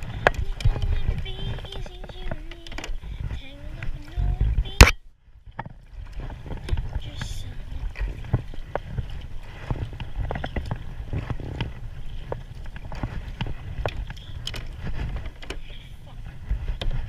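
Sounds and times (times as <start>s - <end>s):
knocks and clicks on kayak: 0.0s - 7.3s, 7.9s - 15.8s
low rumble on microphone: 0.0s - 17.0s.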